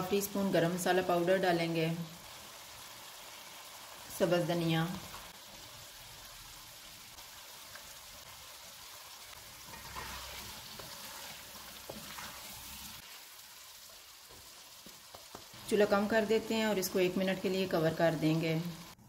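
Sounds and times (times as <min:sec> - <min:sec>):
curry sizzling in a wok: 0:00.0 - 0:19.0
spatula stirring: 0:09.4 - 0:13.1.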